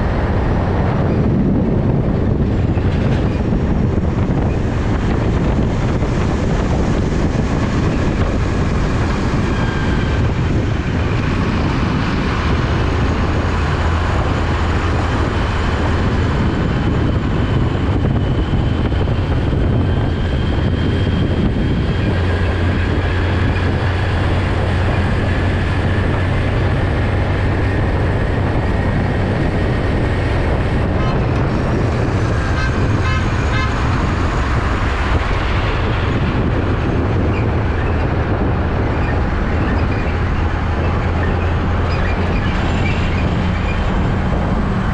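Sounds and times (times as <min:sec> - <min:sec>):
heavy truck engines running: 0:00.0 - 0:44.9.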